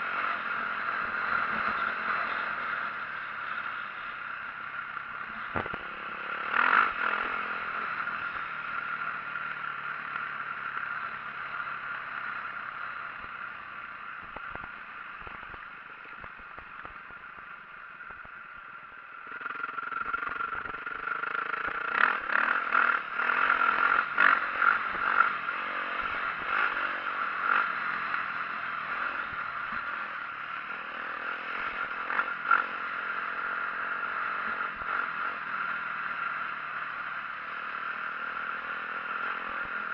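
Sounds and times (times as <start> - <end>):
dirt bike engine running: 0.0 - 39.9
bike rattling over rough ground: 14.1 - 18.7.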